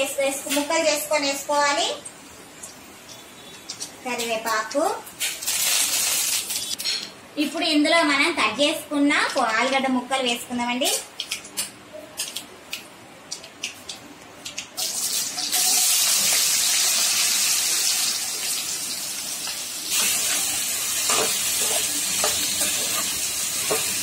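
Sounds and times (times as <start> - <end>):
spices crackling in hot oil: 0.4 - 6.8, 10.9 - 24.0
potatoes sizzling in oil: 3.1 - 6.8, 14.8 - 24.0.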